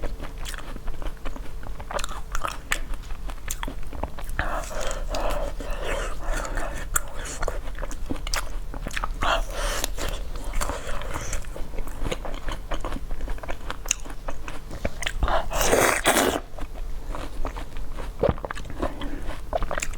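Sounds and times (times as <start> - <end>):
chewing crunchy food: 0.0 - 19.9.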